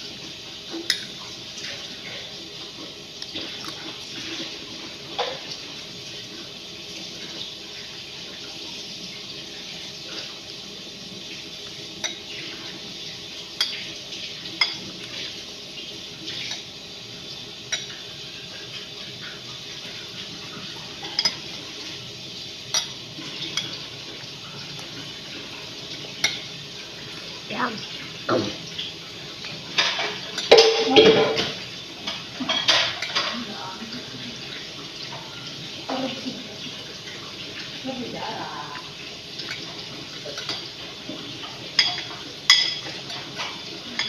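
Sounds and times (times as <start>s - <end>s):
cutlery clinking against a dish: 12.0s - 12.4s, 13.6s - 13.9s, 14.6s - 15.2s, 17.7s - 18.0s, 21.0s - 21.6s, 22.7s - 23.8s, 26.2s - 26.5s, 29.7s - 33.4s, 39.4s - 44.0s.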